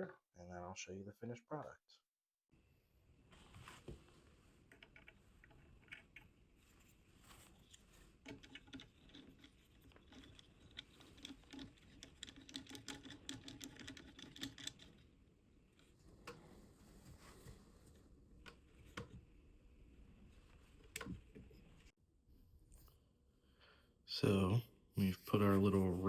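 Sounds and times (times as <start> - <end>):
small parts clicking and tapping: 7.6 - 15.1.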